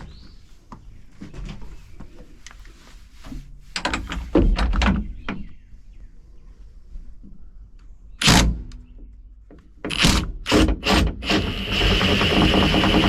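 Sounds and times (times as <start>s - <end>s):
metal clicks clunks and rattles: 3.8s - 5.6s.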